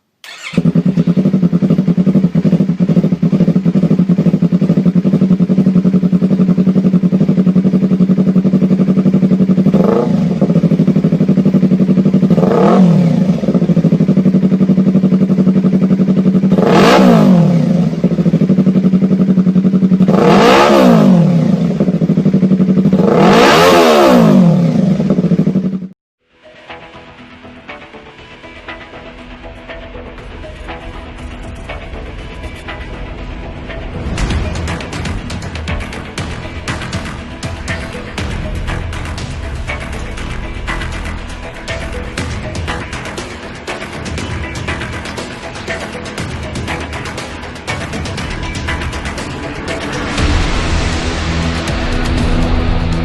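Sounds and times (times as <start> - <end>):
motorcycle engine idling: 0.2 - 25.9, 28.5 - 53.0
motorcycle engine revving: 0.2 - 26.0, 30.1 - 53.0.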